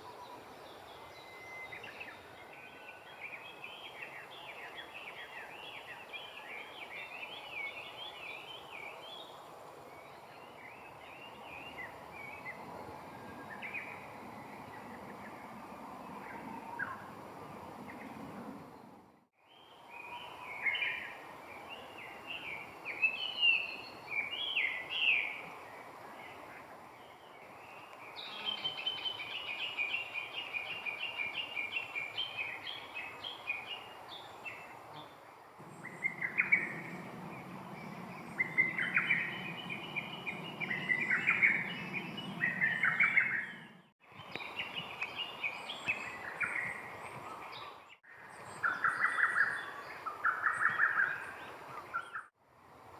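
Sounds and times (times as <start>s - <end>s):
songbirds singing: 0.0s - 52.4s
low steady background rumble: 35.6s - 43.8s.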